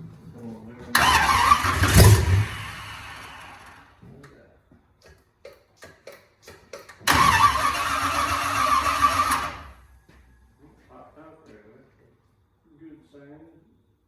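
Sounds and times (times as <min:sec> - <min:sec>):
engine starter cranking: 0:00.9 - 0:03.9, 0:06.8 - 0:09.9.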